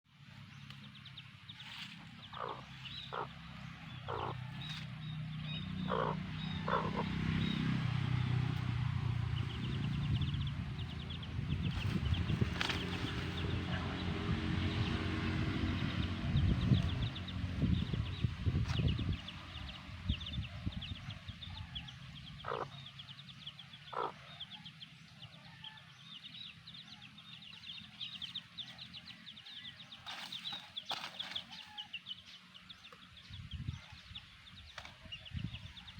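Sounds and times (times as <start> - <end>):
steady low rumble: 0.3 - 24.3
chicks peeping: 0.6 - 25.4, 26.0 - 35.9
hen clucking: 2.1 - 7.2, 21.5 - 22.9, 23.8 - 24.4.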